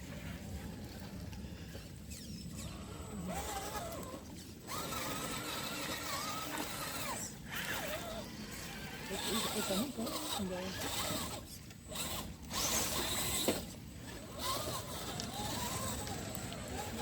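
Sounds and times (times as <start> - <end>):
electric motor whining: 1.5 - 17.0.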